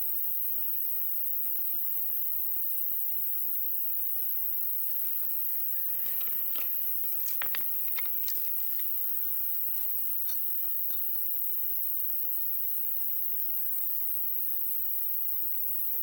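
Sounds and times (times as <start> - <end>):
high insect trill: 0.2 - 16.0
campfire crackling and popping: 6.0 - 9.0.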